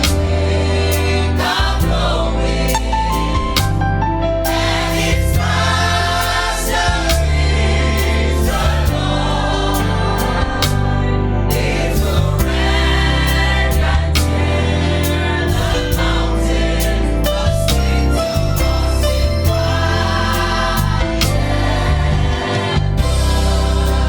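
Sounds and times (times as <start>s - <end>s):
steady drum beat: 0.0s - 2.2s, 4.8s - 11.0s, 12.0s - 16.9s, 19.4s - 24.0s
bass line: 0.0s - 24.0s
group of voices singing: 0.0s - 24.0s.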